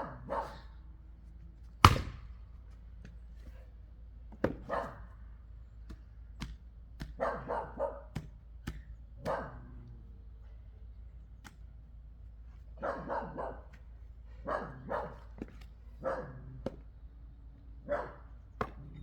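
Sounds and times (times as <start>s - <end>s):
dog barking: 0.0s - 0.7s, 4.6s - 5.1s, 7.2s - 8.2s, 9.2s - 9.7s, 12.8s - 13.7s, 14.4s - 15.3s, 16.0s - 16.5s, 17.8s - 18.3s
axe splitting wood: 1.8s - 2.4s.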